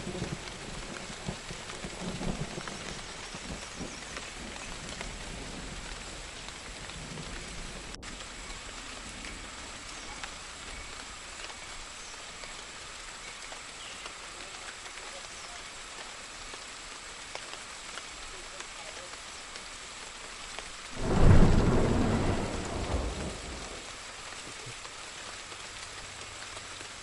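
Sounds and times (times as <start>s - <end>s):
low thunder rumble: 0.0s - 9.8s, 21.0s - 23.9s
steady rain falling: 0.0s - 27.0s.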